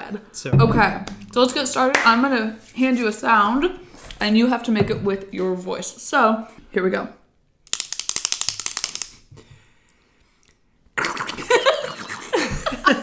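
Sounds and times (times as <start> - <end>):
ratchet clicking: 7.7 - 9.2.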